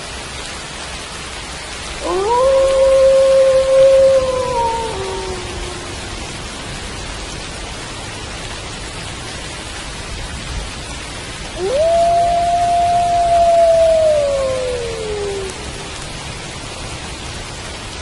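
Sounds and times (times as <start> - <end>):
rain falling: 0.0 - 18.0
wolf howling: 2.0 - 6.3, 11.6 - 16.0.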